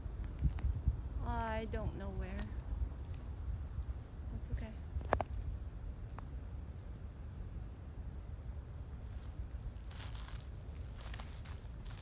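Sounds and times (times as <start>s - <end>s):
cricket chorus chirring: 0.0s - 12.0s.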